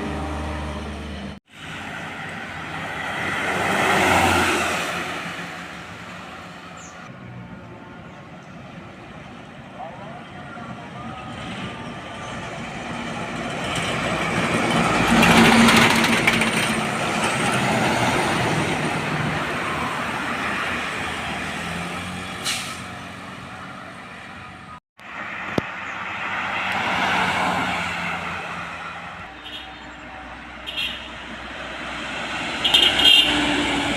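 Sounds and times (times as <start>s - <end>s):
heavy diesel trucks passing: 0.0s - 33.9s.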